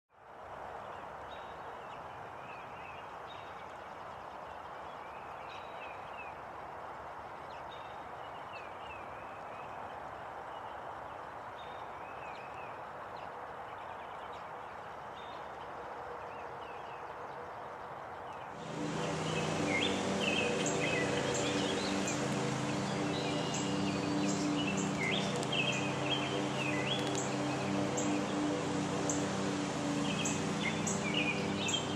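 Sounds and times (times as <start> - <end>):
small birds chirping and calling: 18.4 - 31.9
steady low hum: 18.6 - 31.9.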